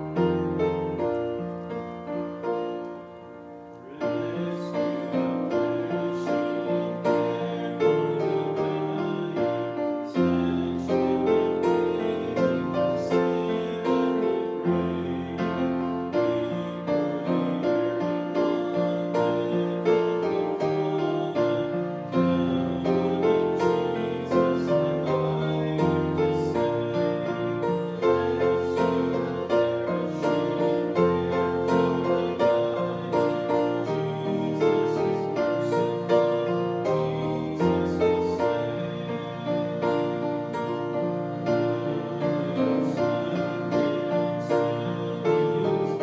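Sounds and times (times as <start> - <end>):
piano playing hymn chords: 0.0 - 46.0.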